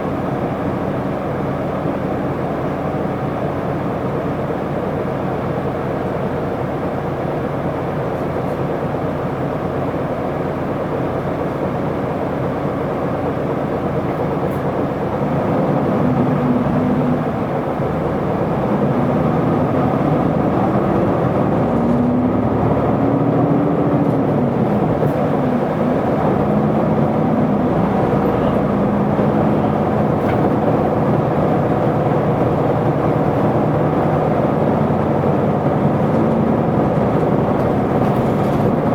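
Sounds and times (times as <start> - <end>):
bus diesel engine: 0.0 - 38.9
road noise: 12.9 - 38.9.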